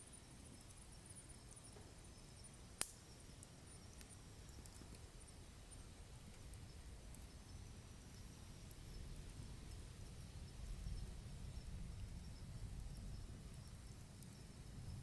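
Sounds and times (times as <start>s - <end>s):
firewood crackling: 0.3s - 15.0s.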